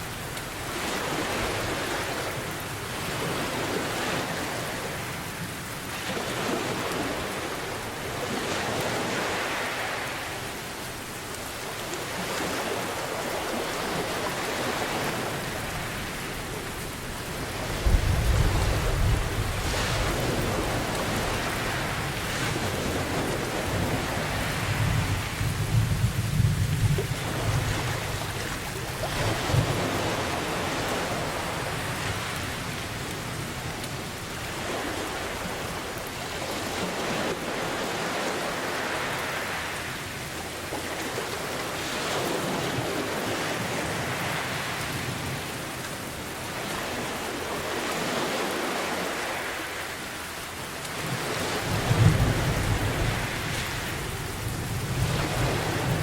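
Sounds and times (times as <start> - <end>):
ocean waves: 0.0 - 56.0
low rumble of thunder: 17.6 - 22.0, 22.9 - 31.7.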